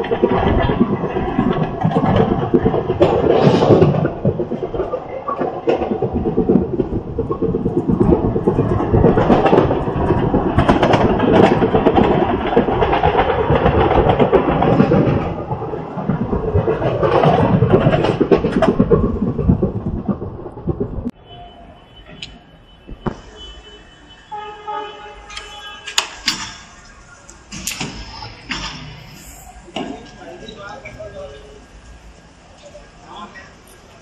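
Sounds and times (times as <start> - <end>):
wheels clacking over track: 0.0 - 21.2
train wheels rumbling on rails: 0.0 - 34.0.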